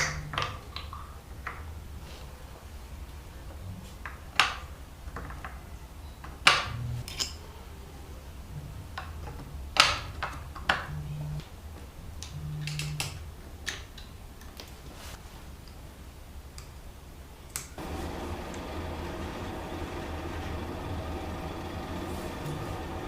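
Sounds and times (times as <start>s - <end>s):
steady low hum: 6.7s - 7.0s, 10.8s - 11.4s, 17.8s - 23.0s.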